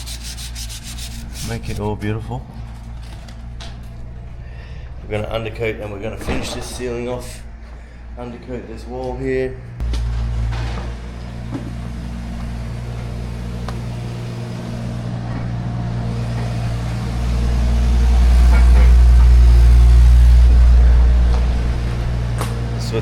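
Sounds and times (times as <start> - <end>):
motor vehicle engine drone: 0.0 - 6.4, 9.6 - 23.0.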